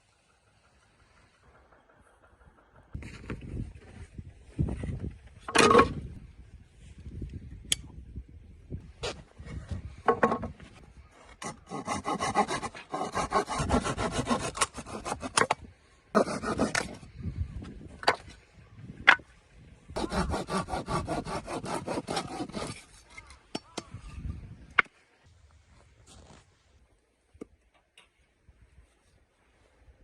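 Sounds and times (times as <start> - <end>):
saw rasping on wood: 11.4 - 15.5, 16.2 - 17.1, 20.0 - 23.0.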